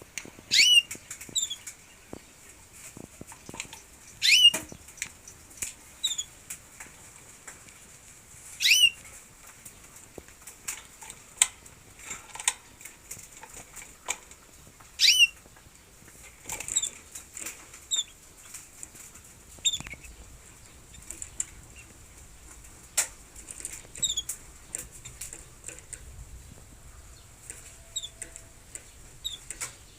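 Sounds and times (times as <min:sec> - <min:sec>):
small birds chirping: 0:00.0 - 0:29.9
sweeping bird calls: 0:00.5 - 0:02.4, 0:04.1 - 0:04.9, 0:08.6 - 0:09.0, 0:15.0 - 0:15.4, 0:26.4 - 0:29.9.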